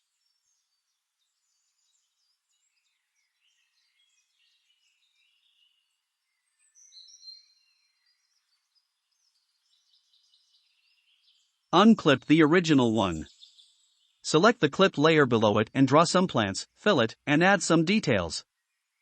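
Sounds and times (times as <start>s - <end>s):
small birds chirping: 0.0s - 12.3s, 12.9s - 14.5s.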